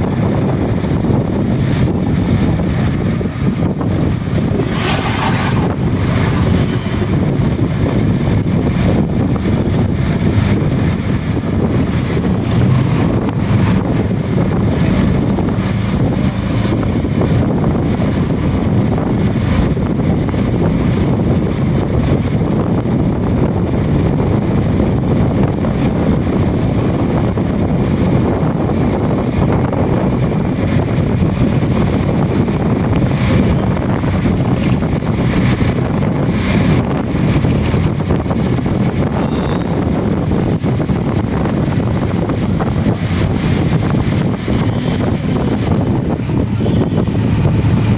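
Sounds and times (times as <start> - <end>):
heavy rain pouring: 0.0 - 22.5, 23.8 - 47.9
wind buffeting microphone: 0.0 - 47.9.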